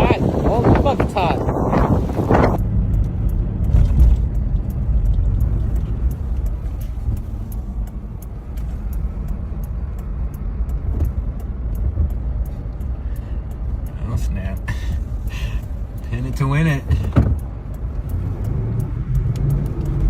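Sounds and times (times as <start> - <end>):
car engine and road noise: 0.0 - 20.0
faint ticks: 2.9 - 16.8.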